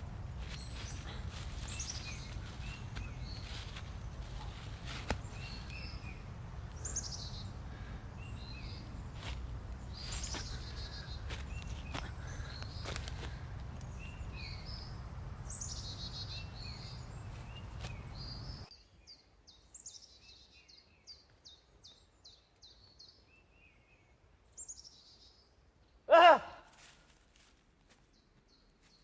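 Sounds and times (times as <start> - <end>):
low background rumble: 0.0 - 18.6
small birds chirping: 0.0 - 26.1.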